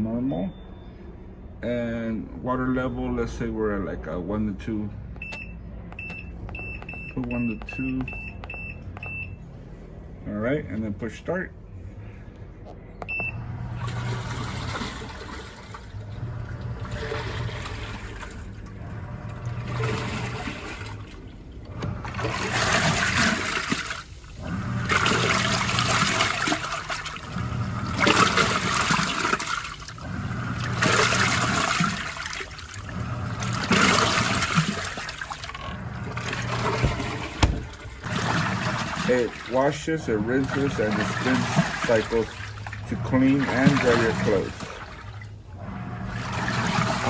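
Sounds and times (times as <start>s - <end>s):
washing machine beep: 0.0s - 1.3s, 5.2s - 9.5s, 13.0s - 21.0s, 21.8s - 39.6s, 40.2s - 47.0s
washing machine motor humming: 13.0s - 47.0s
water churning in tub: 13.2s - 47.0s.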